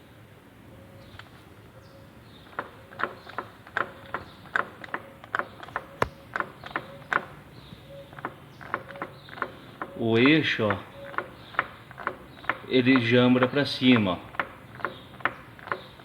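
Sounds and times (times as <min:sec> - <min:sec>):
half-shaft clicks and knocks: 0:02.5 - 0:16.0.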